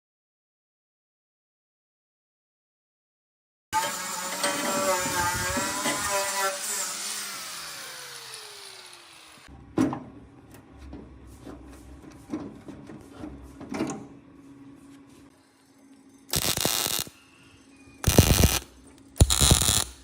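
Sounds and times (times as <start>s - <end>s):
power tool motor winding down: 3.8s - 9.5s, 16.3s - 17.1s, 18.0s - 20.0s.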